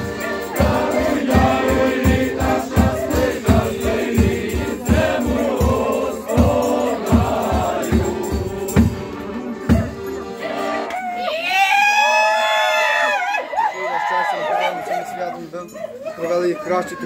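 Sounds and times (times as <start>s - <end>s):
steady low drum beat: 0.0s - 10.2s
group singing a folk carol: 0.0s - 10.9s.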